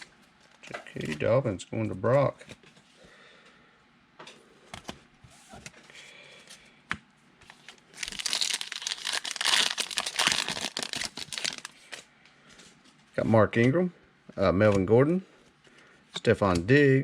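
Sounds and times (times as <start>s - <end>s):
foil wrapper tearing and crinkling: 8.0s - 12.0s.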